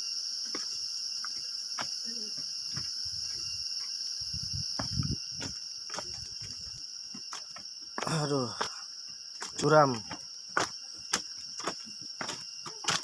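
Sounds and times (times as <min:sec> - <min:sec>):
insects buzzing: 0:00.0 - 0:13.0
dull low thumps: 0:04.2 - 0:05.6.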